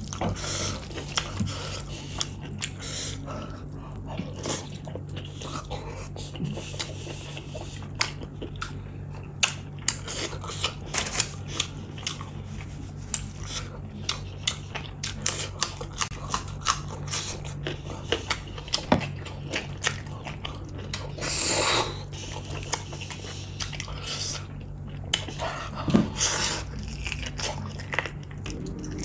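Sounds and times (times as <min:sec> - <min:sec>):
low steady hum: 0:00.0 - 0:29.0
wet chewing and lip smacks: 0:03.9 - 0:21.3
short rushing sound: 0:28.4 - 0:29.0.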